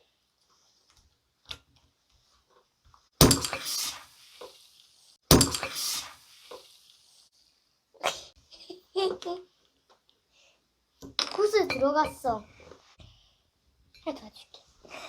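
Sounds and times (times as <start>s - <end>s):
fizzing hiss: 3.2s - 7.3s
soda bottle seal popping: 5.3s - 6.7s.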